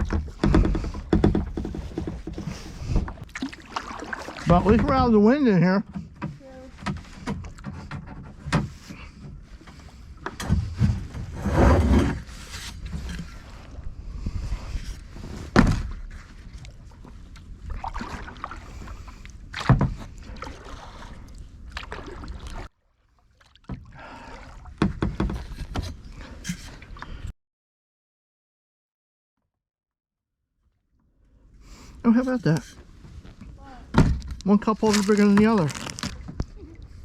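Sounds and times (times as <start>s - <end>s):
paddle strokes in water: 0.0s - 27.3s.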